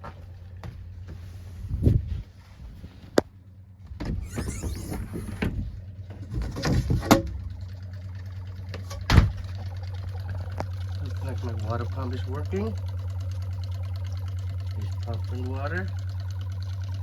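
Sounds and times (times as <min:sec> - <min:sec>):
water pump humming: 0:04.3 - 0:17.0
loud thump: 0:09.0 - 0:09.5.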